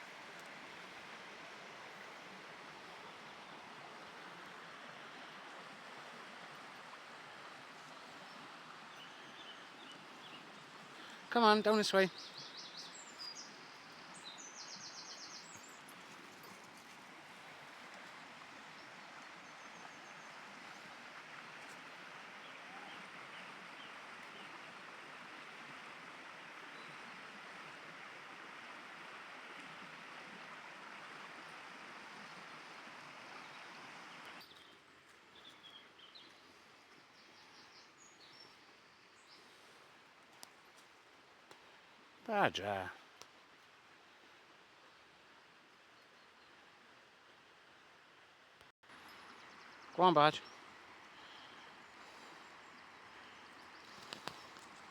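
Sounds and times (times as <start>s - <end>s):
birds chirping: 8.9s - 16.6s, 49.0s - 54.9s.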